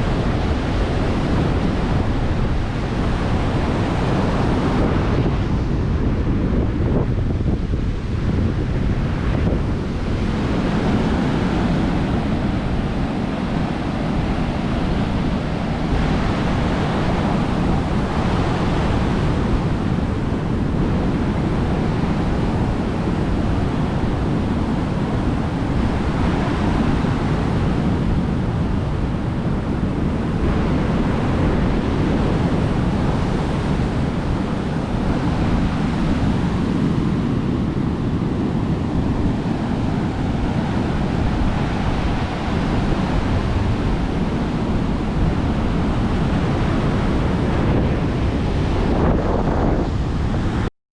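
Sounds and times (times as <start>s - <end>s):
surf breaking on beach: 0.0s - 50.7s
wind buffeting microphone: 0.0s - 50.7s.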